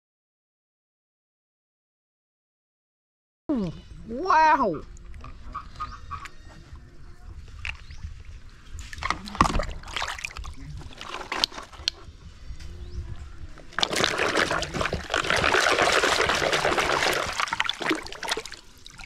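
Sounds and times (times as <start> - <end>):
water pouring: 13.7 - 19.0.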